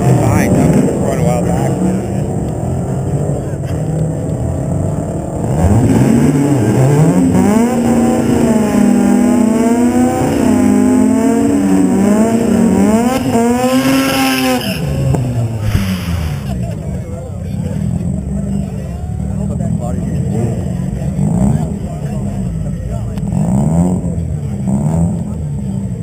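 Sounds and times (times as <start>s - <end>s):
car engine revving: 0.0s - 26.0s
tire squeal: 13.7s - 16.6s.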